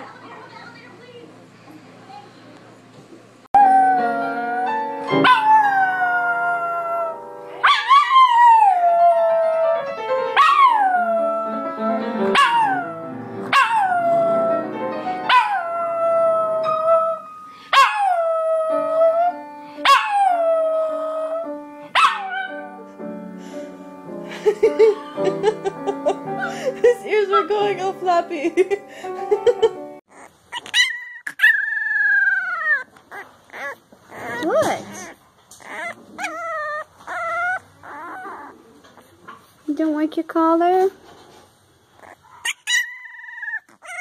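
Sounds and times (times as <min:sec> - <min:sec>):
music with held notes: 0:03.6 - 0:07.6, 0:09.0 - 0:10.4, 0:11.1 - 0:30.0
dog howling: 0:03.6 - 0:13.0, 0:30.8 - 0:32.9, 0:33.6 - 0:38.8.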